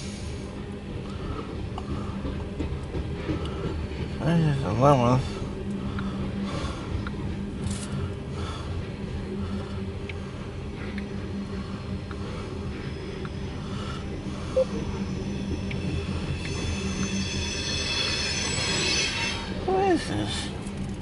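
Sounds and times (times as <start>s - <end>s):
train wheels rumbling on rail: 0.0s - 21.0s
high-pitched wheel squeal: 14.8s - 19.7s.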